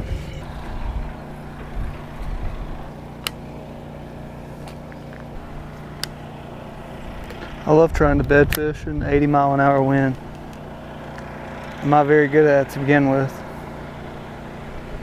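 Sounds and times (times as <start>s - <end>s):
wind buffeting microphone: 0.0s - 2.9s, 7.0s - 10.3s
steady low hum: 0.0s - 15.0s.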